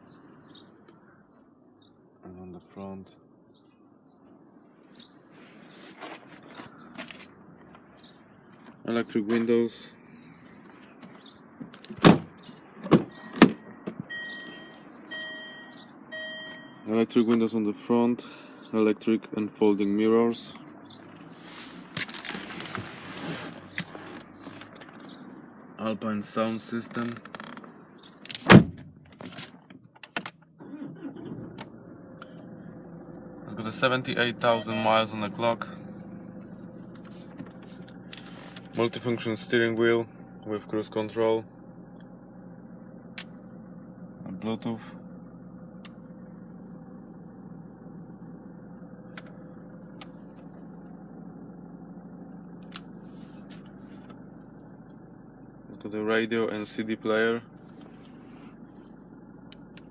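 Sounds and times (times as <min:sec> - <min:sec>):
diesel engine idling: 0:00.0 - 0:11.6, 0:12.3 - 0:28.2, 0:30.4 - 0:59.9
car door shutting: 0:11.6 - 0:14.6, 0:26.9 - 0:29.5.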